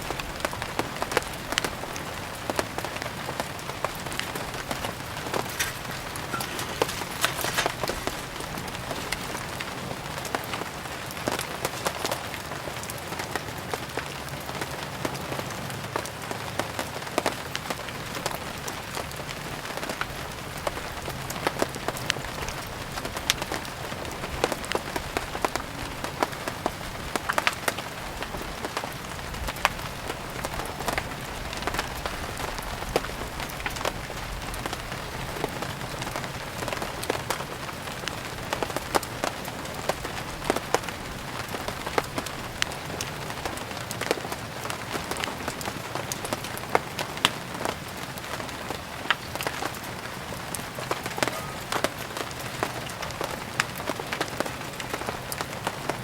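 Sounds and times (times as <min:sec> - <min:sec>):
rain falling: 0:00.0 - 0:56.0
sharp pops and drips: 0:00.4 - 0:10.7.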